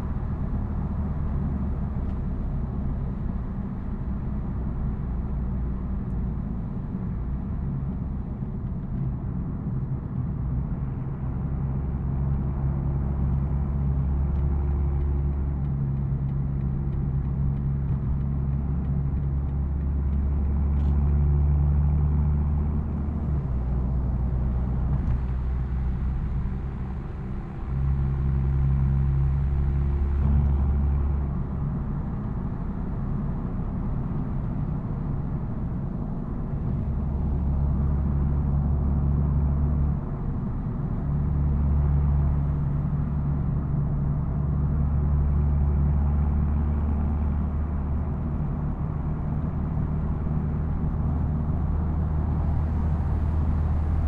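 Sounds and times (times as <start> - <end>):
car exhaust at low revs: 10.8 - 54.0.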